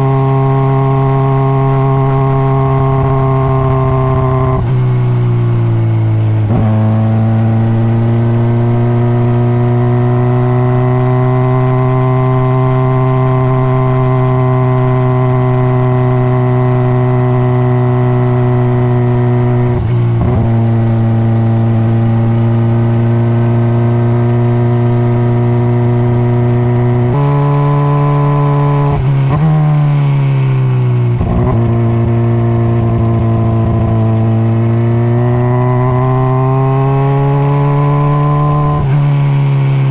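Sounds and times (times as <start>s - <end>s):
motorcycle engine with gear changes: 0.0s - 39.9s.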